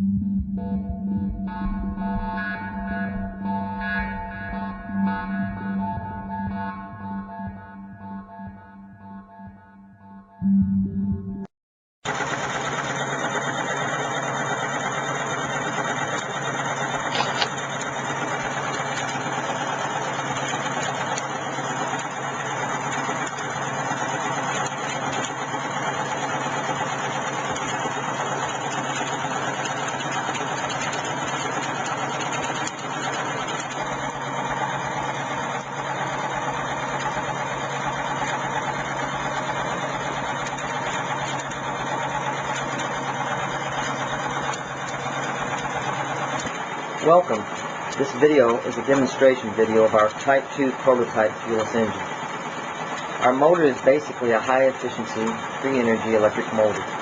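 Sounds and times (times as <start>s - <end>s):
electric motor humming and whirring: 12.1s - 57.0s.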